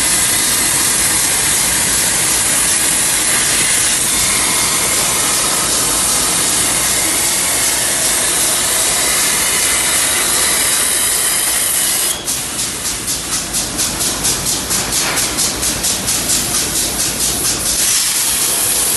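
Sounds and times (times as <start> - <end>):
plasma cutter arc hissing: 0.0 - 18.9.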